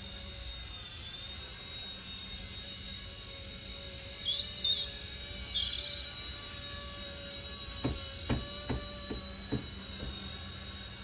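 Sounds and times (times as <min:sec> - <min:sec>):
high-pitched motor whine: 0:00.0 - 0:11.0
low rotor hum: 0:00.0 - 0:11.0.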